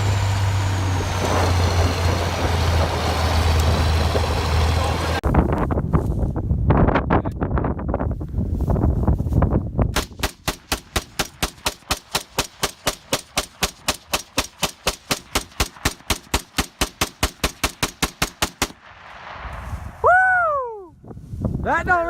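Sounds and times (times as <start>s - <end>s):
rapid rifle gunfire: 10.0s - 18.9s.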